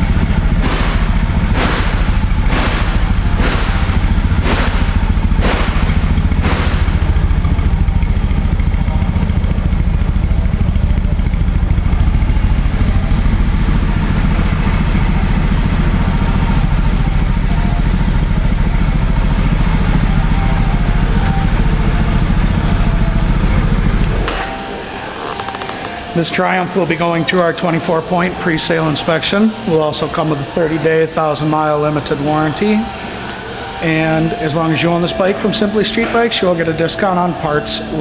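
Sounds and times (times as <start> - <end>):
motorcycle engine idling: 0.0 - 30.4.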